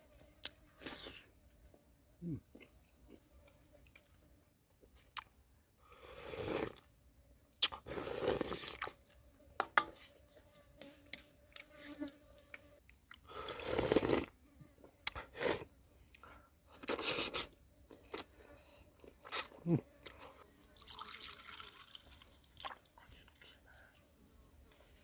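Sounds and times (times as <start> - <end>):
crunchy chewing: 0.4 - 5.4, 11.5 - 25.0.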